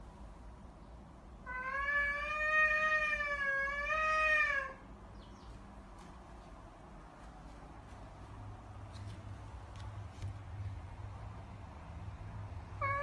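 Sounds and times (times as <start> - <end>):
cat yowling: 1.4 - 4.8, 12.8 - 13.0.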